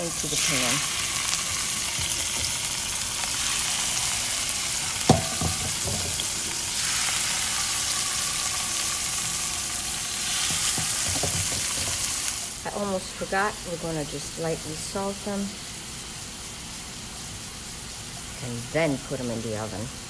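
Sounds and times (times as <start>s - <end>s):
fish sizzling in oil: 0.0s - 20.0s
sharp knock: 5.1s - 6.1s.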